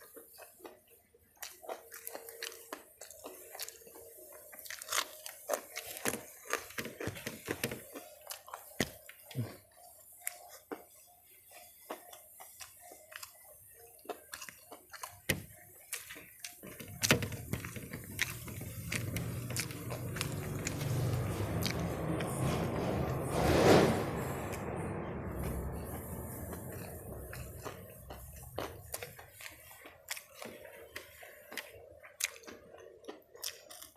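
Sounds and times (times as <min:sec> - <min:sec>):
chewing and crunching food: 0:00.0 - 0:33.9
low rumble: 0:19.0 - 0:29.0.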